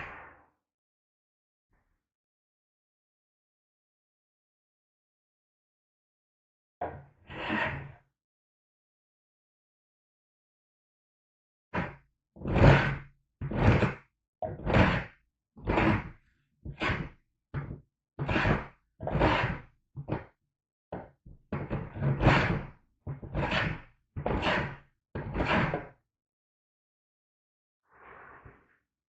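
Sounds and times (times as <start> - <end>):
hand plane scraping along board: 7.3 - 8.0, 11.8 - 20.3, 21.6 - 26.0.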